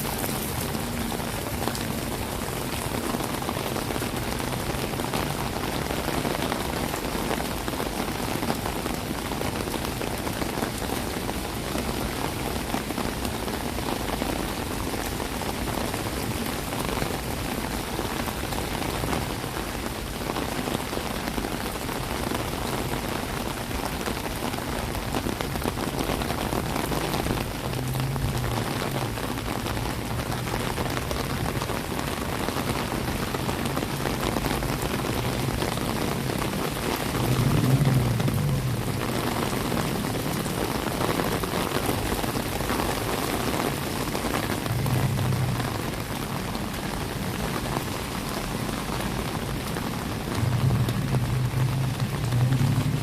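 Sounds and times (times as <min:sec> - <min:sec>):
heavy rain on hard surfaces: 0:00.0 - 0:53.0.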